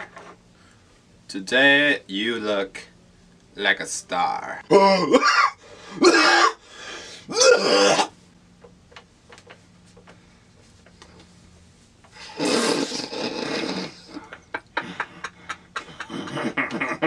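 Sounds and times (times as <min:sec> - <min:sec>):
rasping vocal burst: 0:12.2 - 0:14.3.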